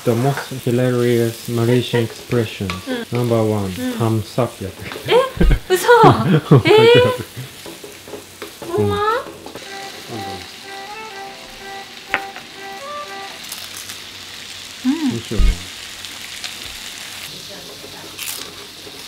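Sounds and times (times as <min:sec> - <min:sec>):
filling sizzling in a wok: 0:00.0 - 0:19.0
person exclaiming: 0:02.9 - 0:03.2, 0:03.8 - 0:04.2, 0:05.1 - 0:07.3, 0:14.8 - 0:15.7
short tune: 0:09.6 - 0:13.8.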